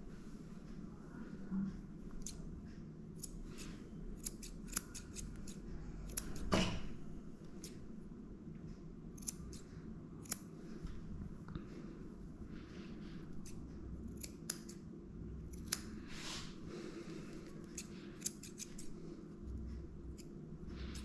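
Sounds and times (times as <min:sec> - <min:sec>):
scissors snipping hair: 0:02.1 - 0:02.4, 0:03.1 - 0:06.5, 0:07.6 - 0:07.8, 0:09.1 - 0:10.5, 0:13.3 - 0:14.8, 0:15.5 - 0:16.0, 0:17.4 - 0:19.0.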